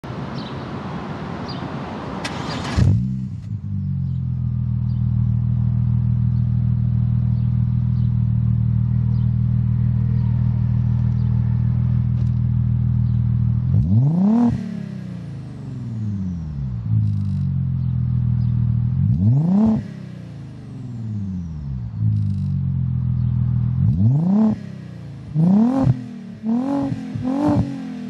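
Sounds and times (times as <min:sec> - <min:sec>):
car engine idling: 0:02.3 - 0:28.0.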